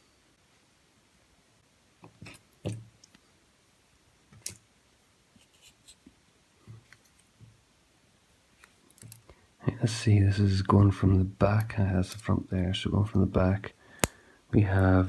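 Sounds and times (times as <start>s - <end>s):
light clicks of small metal parts: 8.6s - 9.4s, 11.5s - 12.3s, 14.0s - 14.2s.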